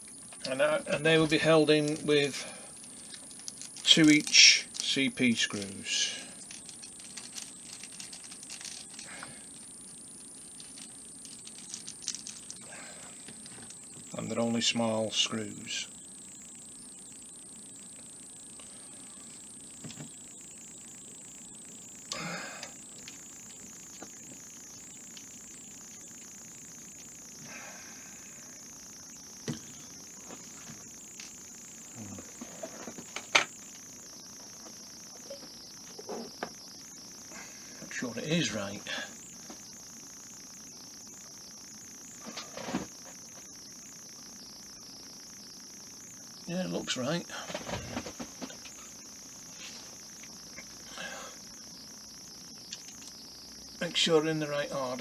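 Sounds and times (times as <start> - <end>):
steady high hiss: 0.0 - 55.0
small parts clicking and clinking: 0.3 - 12.6, 13.2 - 13.8, 22.1 - 24.1, 52.7 - 53.2
plastic parts clicking and tapping: 2.8 - 4.9, 6.4 - 9.7, 10.6 - 12.6.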